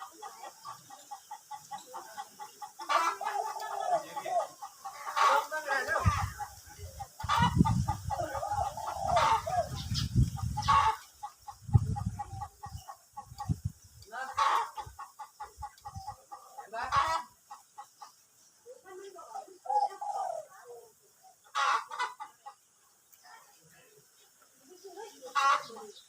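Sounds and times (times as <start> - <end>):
dove cooing: 0.0 - 10.0, 19.3 - 21.4
chickens clucking: 0.0 - 26.0.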